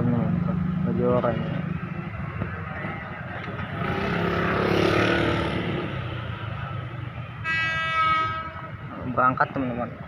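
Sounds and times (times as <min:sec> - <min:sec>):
train horn blast: 0:07.4 - 0:08.7.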